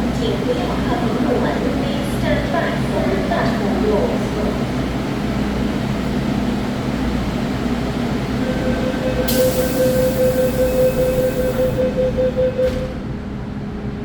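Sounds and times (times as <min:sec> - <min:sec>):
subway train rumble: 0:00.0 - 0:14.0
steady mid-pitched tone: 0:08.4 - 0:12.6.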